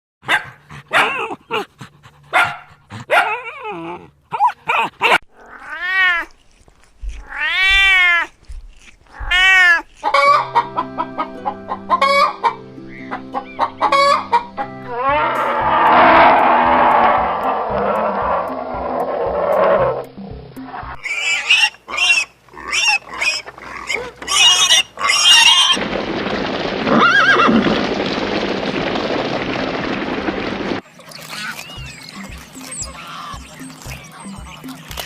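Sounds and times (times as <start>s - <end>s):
farm animal calls: 9.1s - 15.7s, 21.0s - 25.8s, 31.0s - 35.0s
loud noisy rush: 15.4s - 19.2s, 25.8s - 30.8s.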